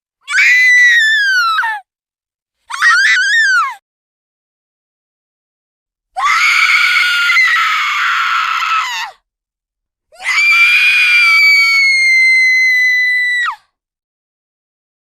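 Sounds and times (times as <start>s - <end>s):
long high-pitched screams: 0.3s - 1.8s, 2.7s - 3.8s, 6.2s - 9.2s, 10.2s - 13.6s.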